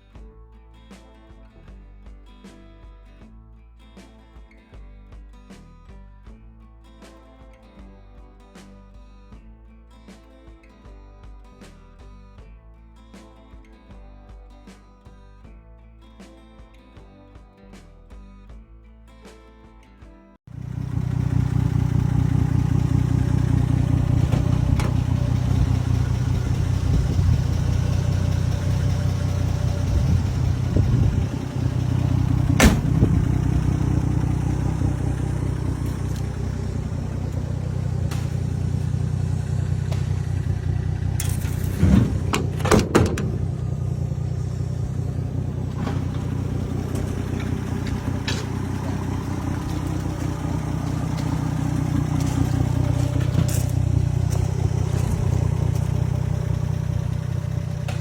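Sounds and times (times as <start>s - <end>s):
car engine idling: 20.5s - 58.0s
sharp knocks: 32.5s - 33.3s.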